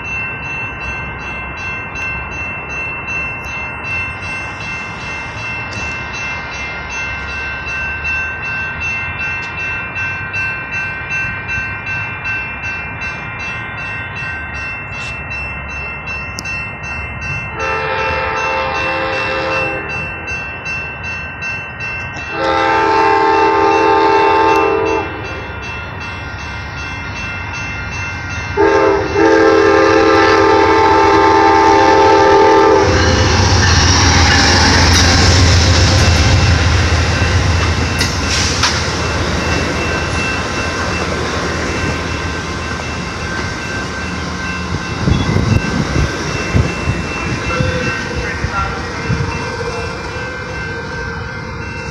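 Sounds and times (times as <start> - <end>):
locomotive horn blasts: 17.6 - 20.0, 22.3 - 25.4, 28.6 - 33.4
locomotive passing with low rumble: 32.8 - 51.9
train wheel clicks: 33.1 - 49.7.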